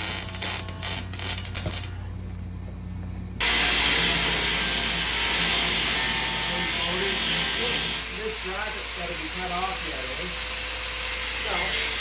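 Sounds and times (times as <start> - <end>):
low shop hum: 0.0 - 12.0
power tool hissing: 3.4 - 12.0.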